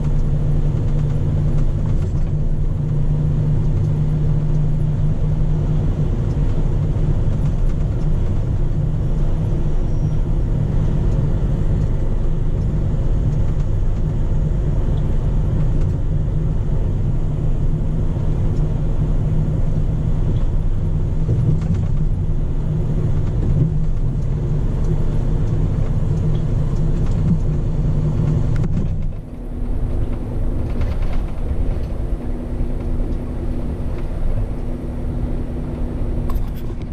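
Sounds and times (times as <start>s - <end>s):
diesel truck engine humming: 0.0s - 36.9s.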